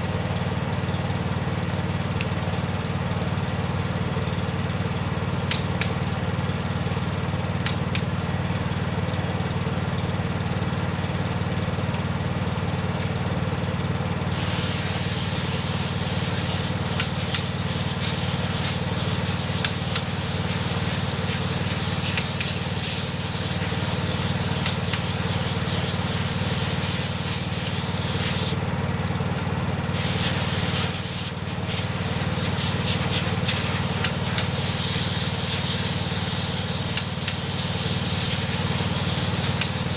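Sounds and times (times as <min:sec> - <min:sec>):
motor hum: 0:00.0 - 0:39.9
loud continuous hiss: 0:14.3 - 0:28.6, 0:29.9 - 0:39.9.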